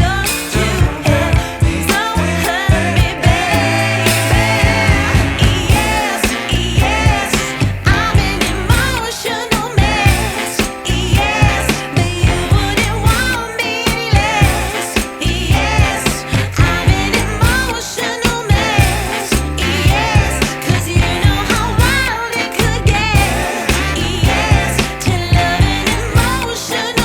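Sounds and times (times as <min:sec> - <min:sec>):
song with singing over a beat: 0:00.0 - 0:27.0.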